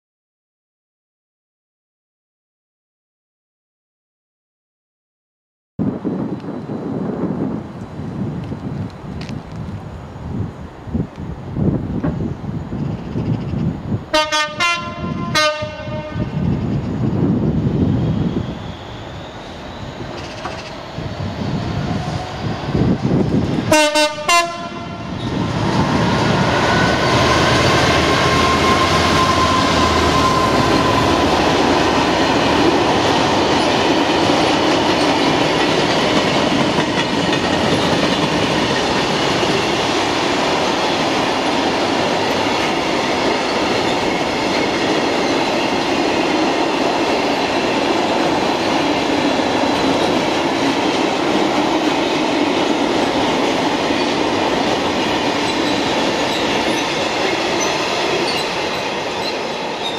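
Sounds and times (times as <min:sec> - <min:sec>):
diesel locomotive engine rumble: 0:05.8 - 0:59.9
faint high wheel squeal: 0:17.8 - 0:22.8, 0:28.3 - 0:31.2, 0:55.4 - 0:59.9
freight wagons rattling on rails: 0:32.6 - 0:39.8, 0:53.3 - 0:59.9.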